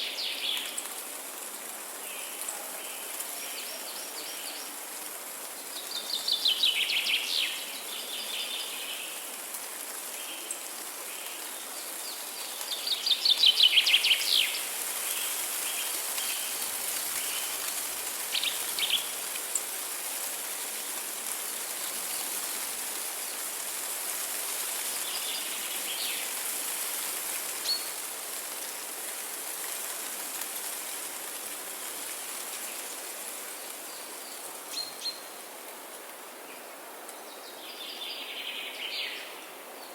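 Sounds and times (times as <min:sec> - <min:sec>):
high background hiss: 0:00.0 - 0:39.9.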